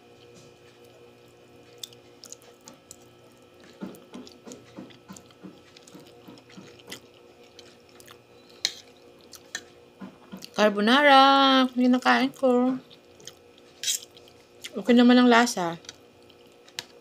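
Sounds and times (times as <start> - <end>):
person chewing: 0.2 - 10.6, 12.8 - 14.8, 15.8 - 17.0.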